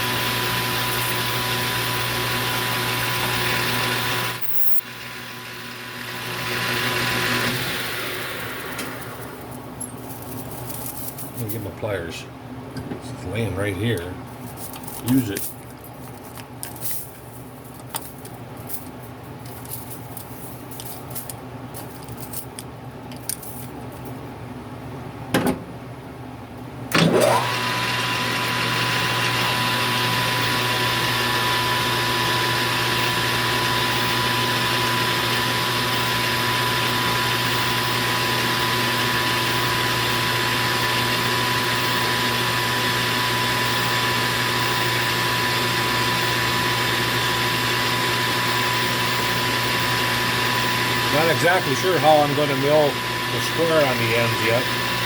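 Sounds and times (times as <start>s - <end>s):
metal lathe motor whining: 0.0s - 9.6s, 27.0s - 55.0s.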